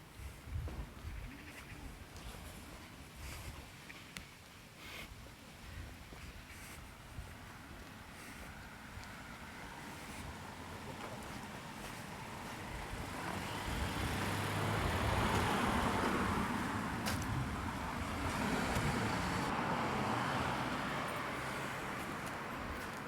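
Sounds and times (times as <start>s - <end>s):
cars driving past: 8.2s - 23.0s.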